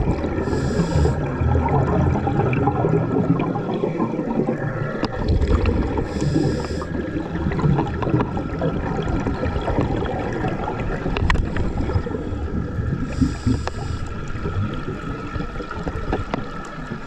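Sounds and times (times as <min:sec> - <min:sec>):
underwater low rumble: 0:00.0 - 0:17.0
scuba regulator hissing: 0:00.5 - 0:01.2, 0:06.1 - 0:06.9, 0:13.1 - 0:14.1.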